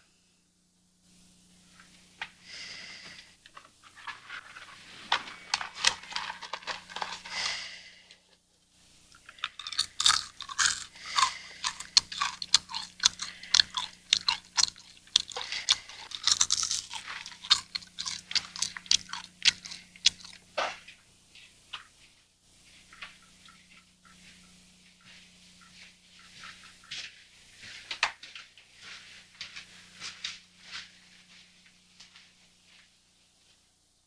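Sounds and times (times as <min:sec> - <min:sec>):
faint low hum: 0:00.0 - 0:34.0
person chewing crunchy food: 0:05.1 - 0:07.9, 0:09.1 - 0:20.9.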